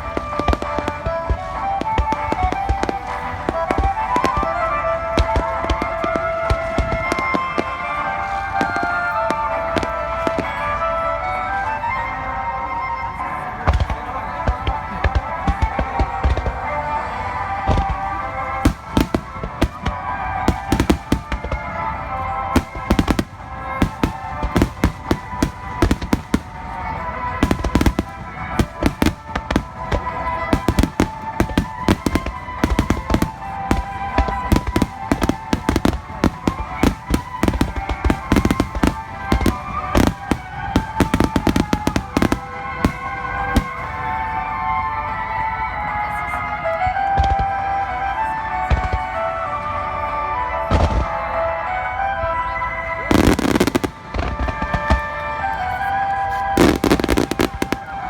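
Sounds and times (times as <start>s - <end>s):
fireworks bangs and crackles: 0.0s - 58.0s
steady music: 0.0s - 58.0s.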